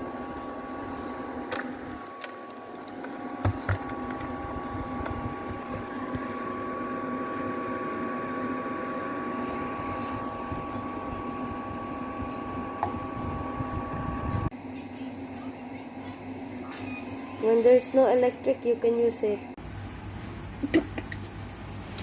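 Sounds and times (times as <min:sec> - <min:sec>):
air cooler fan whine: 0:00.0 - 0:22.0.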